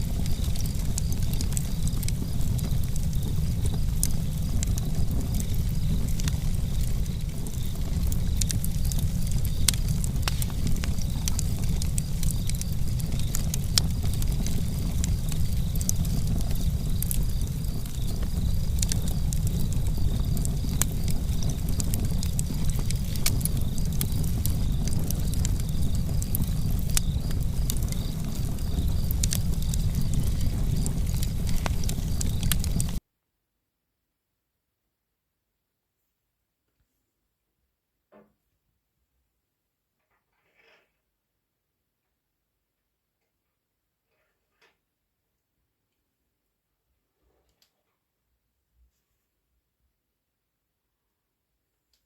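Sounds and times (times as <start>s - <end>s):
fire crackling and popping: 0.0s - 33.0s
wood fire rumbling: 0.0s - 33.0s.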